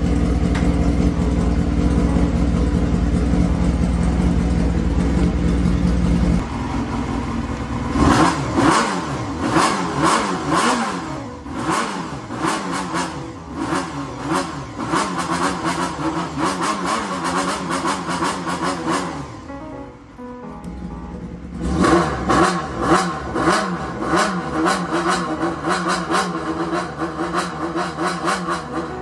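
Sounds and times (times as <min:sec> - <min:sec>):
motorcycle engine idling: 0:00.0 - 0:12.4, 0:20.7 - 0:22.8
rising and falling engine beats: 0:02.3 - 0:20.1, 0:20.7 - 0:29.0.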